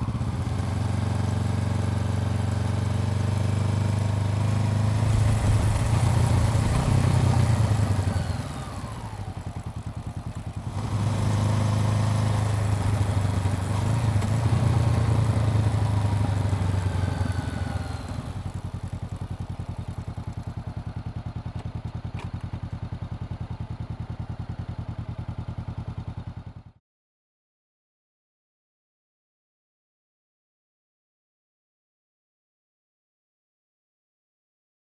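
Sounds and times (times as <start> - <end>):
motorcycle engine running: 0.0 - 26.8.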